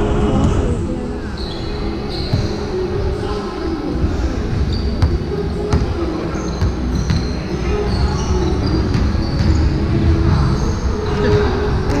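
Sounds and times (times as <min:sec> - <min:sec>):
players' voices echoing: 0:00.0 - 0:12.0
shoe squeaks: 0:01.4 - 0:02.8, 0:04.7 - 0:11.5
basketball bouncing: 0:05.0 - 0:06.0, 0:06.6 - 0:07.3.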